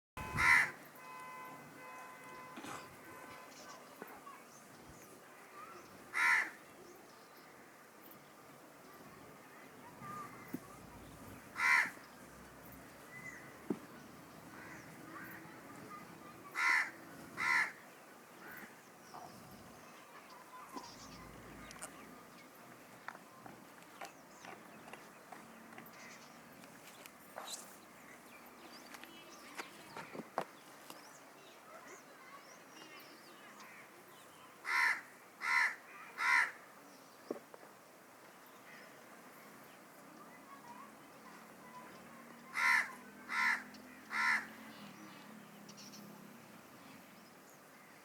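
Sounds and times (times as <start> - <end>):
peacock calls: 0.2 - 4.4, 9.9 - 12.0, 14.5 - 17.8, 42.5 - 44.6
small birds chirping: 6.7 - 34.6, 38.2 - 48.0.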